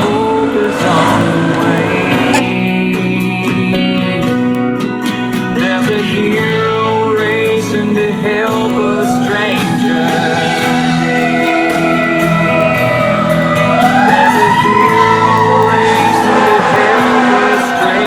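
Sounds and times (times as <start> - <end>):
fire engine siren wail: 0.0 - 2.6, 8.4 - 18.0
country music with guitar: 0.0 - 18.0.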